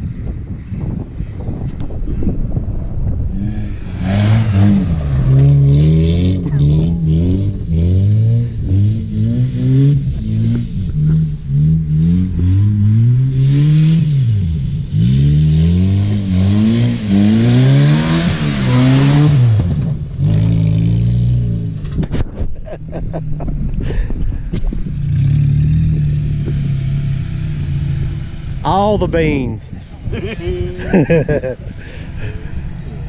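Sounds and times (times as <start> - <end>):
car engine revving: 3.3 - 21.9.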